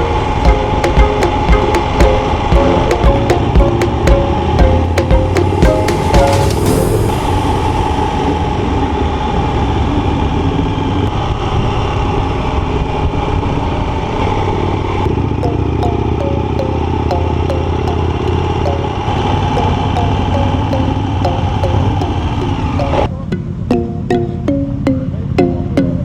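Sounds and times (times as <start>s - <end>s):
regular ticking: 0.0s - 7.3s, 15.1s - 26.0s.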